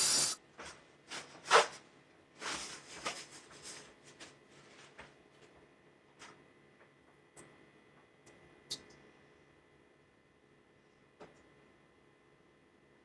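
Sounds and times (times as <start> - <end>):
short rustle or scrape: 2.4 - 5.0.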